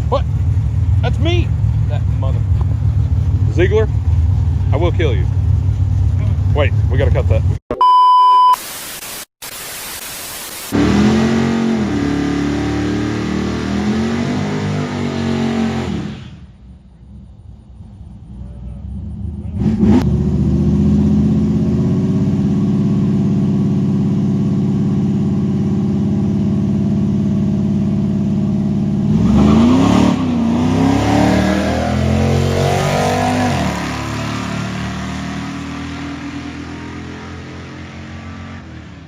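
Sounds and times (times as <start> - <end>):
car engine running and revving: 0.0 - 7.6, 17.0 - 39.0.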